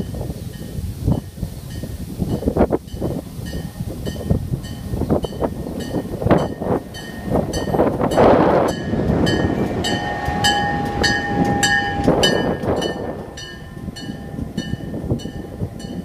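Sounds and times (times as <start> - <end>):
train rumbling and knocking: 0.0 - 16.0
steady tone: 3.5 - 16.0.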